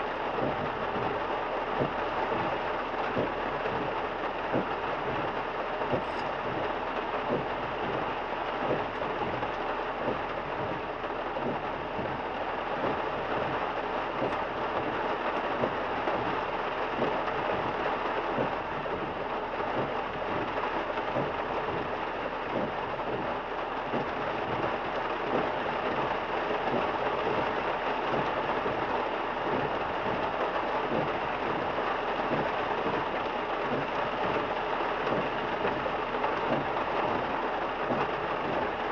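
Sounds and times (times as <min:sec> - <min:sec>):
heavy rain on car windshield: 0:00.0 - 0:38.9.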